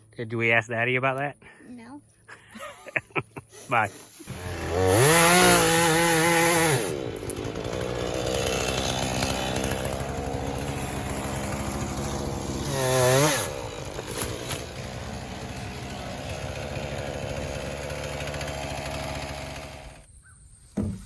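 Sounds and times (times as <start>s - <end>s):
chainsaw revving and idling: 4.2s - 20.1s.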